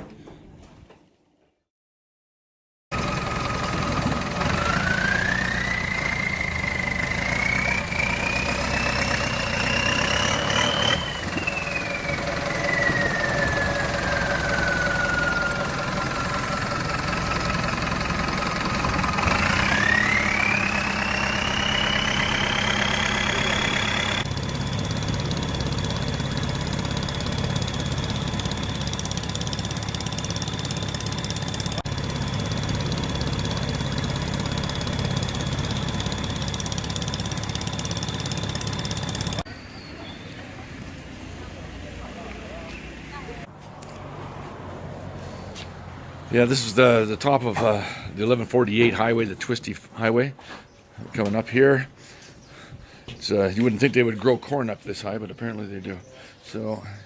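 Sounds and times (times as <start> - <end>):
motorcycle engine whine: 2.9 - 48.2.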